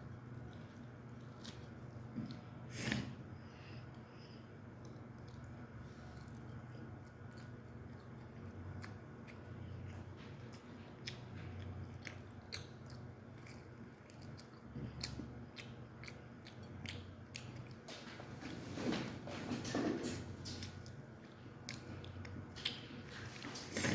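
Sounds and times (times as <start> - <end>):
person biting and chewing: 6.2 - 17.9.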